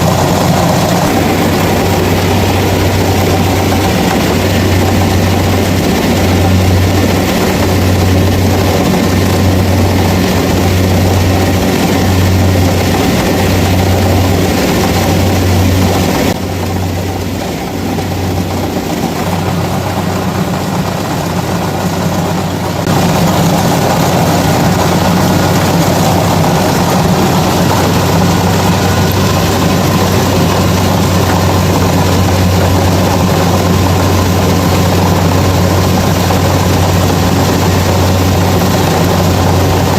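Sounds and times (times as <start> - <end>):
combine harvester diesel engine: 0.0 - 39.9.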